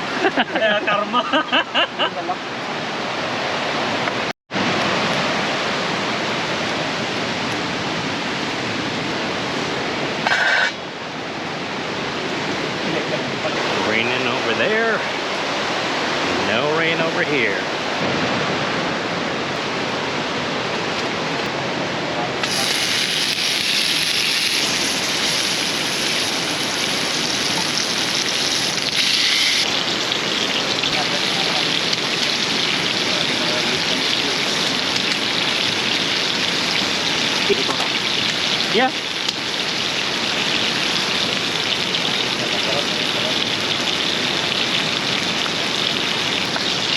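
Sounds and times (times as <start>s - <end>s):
fast river rushing: 2.0s - 46.9s
short high squeak: 10.2s - 10.8s, 29.0s - 29.6s.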